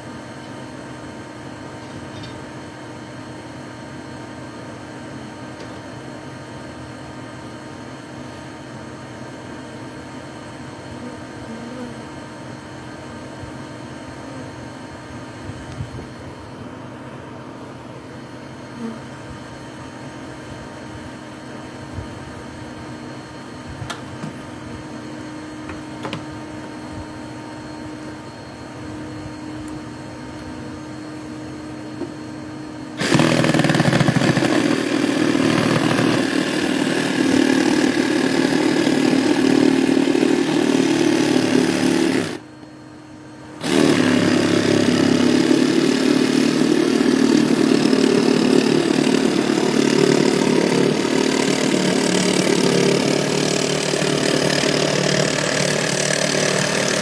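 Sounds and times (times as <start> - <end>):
motor running loudly: 32.9 - 42.4, 43.6 - 57.0.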